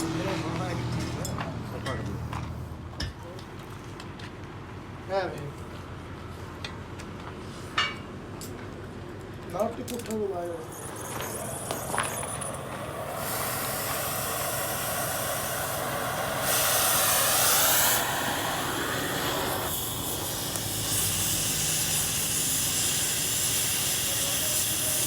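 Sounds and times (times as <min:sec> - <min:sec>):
torch flame hissing: 0:10.7 - 0:25.0.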